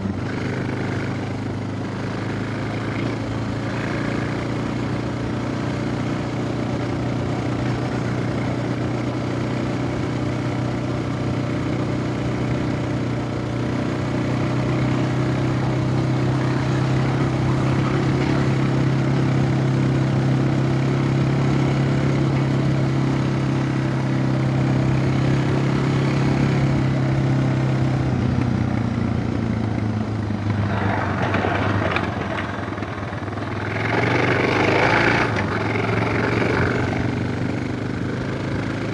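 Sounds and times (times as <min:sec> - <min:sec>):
single-cylinder engine running: 0:00.0 - 0:38.9.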